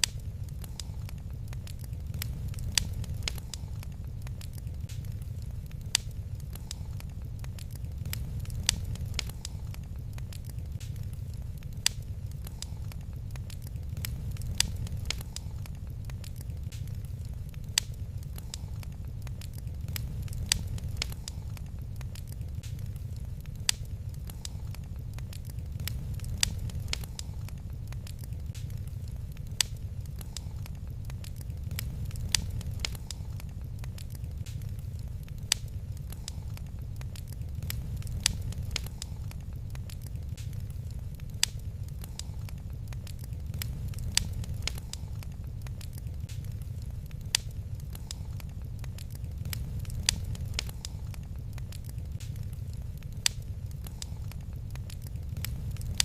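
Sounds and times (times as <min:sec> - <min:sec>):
low rumble: 0:00.0 - 0:56.0
wood fire crackling: 0:00.0 - 0:56.0.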